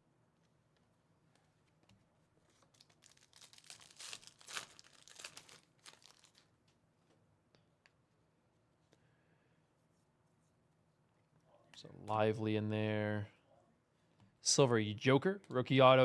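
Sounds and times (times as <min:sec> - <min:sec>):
wrapper crinkling and tearing: 0:02.5 - 0:06.5.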